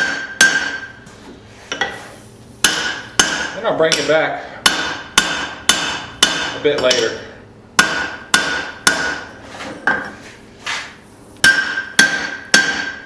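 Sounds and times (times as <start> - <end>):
hammer striking anvil: 0.0 - 1.0, 2.6 - 7.2, 7.8 - 10.2, 11.4 - 13.0.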